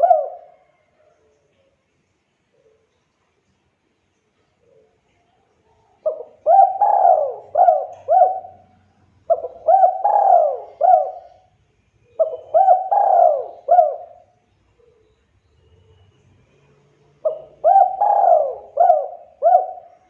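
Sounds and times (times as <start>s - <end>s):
dove cooing: 0.0s - 1.1s, 6.0s - 15.2s, 17.2s - 20.0s.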